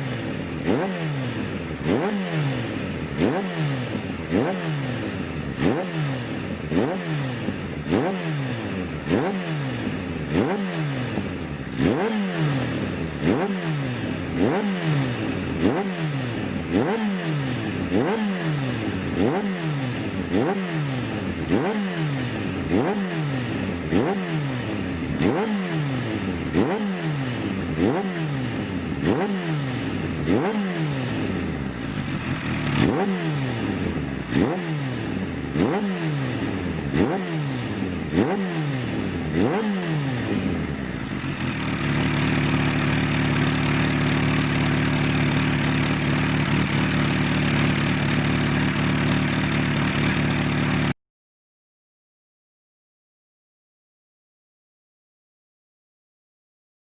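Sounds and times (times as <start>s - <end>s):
motorcycle engine revving: 0.0s - 51.0s
engine idling: 31.6s - 33.0s, 40.8s - 50.9s.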